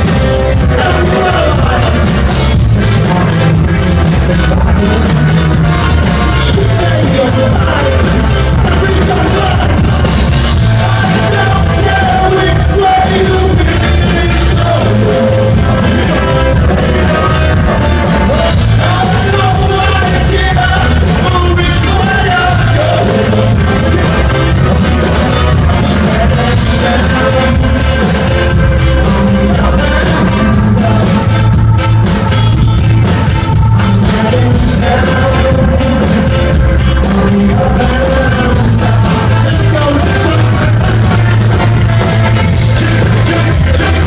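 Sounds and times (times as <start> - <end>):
heavy steady bass beat: 0.0 - 44.0
live band music with singing: 0.0 - 44.0.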